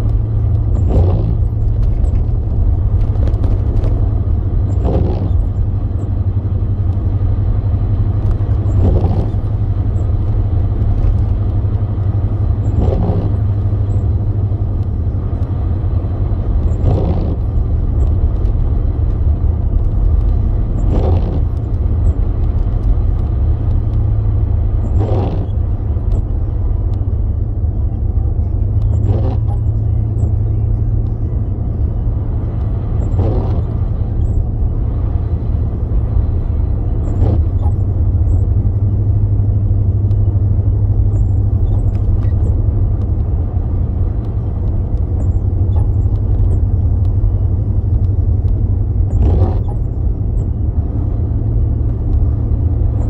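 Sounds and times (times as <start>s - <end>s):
road rumble inside car: 0.0s - 53.0s
windshield wipers swishing: 0.4s - 5.6s, 8.2s - 11.6s, 12.6s - 13.4s, 16.4s - 24.0s, 24.7s - 26.4s, 28.8s - 30.2s, 32.4s - 38.1s.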